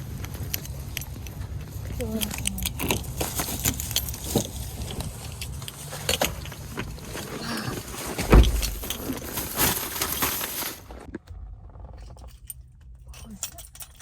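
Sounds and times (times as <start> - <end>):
rustling and clicking handling: 0.0 - 14.0
heavy low thump: 8.2 - 8.9.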